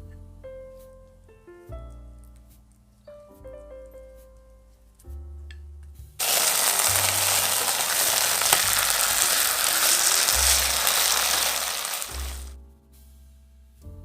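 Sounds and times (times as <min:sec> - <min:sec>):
soft background music: 0:00.0 - 0:11.9, 0:12.6 - 0:14.0
food sizzling in a frying pan: 0:06.2 - 0:12.6.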